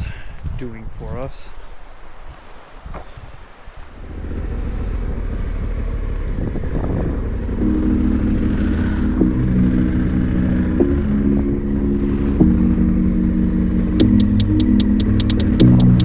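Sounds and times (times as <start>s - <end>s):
motorcycle engine running: 4.0s - 16.0s.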